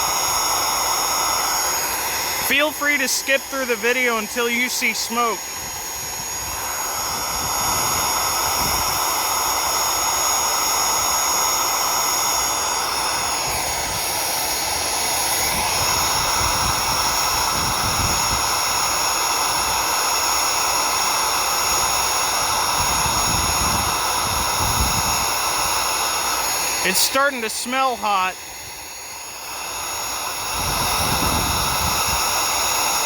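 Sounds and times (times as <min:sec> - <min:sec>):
vacuum cleaner motor whining: 0:00.0 - 0:33.0
wind buffeting microphone: 0:30.5 - 0:32.2.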